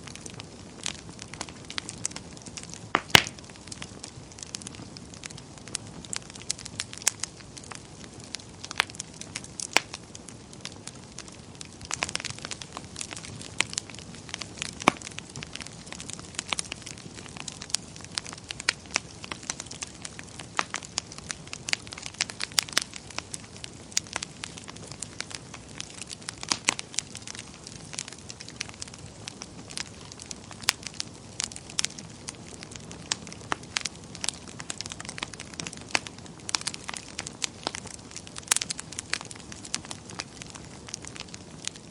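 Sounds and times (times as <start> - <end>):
fire crackling: 0.0 - 41.9
sharp pops and snaps: 2.7 - 3.5.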